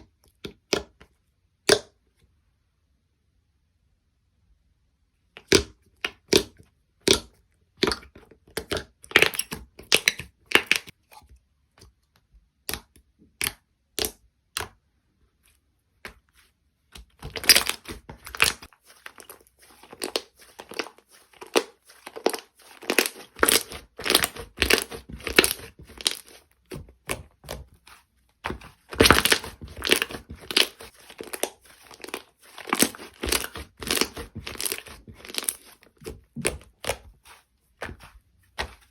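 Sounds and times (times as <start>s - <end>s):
slime popping and crackling: 8.7s - 10.9s, 17.1s - 27.8s, 28.4s - 37.2s.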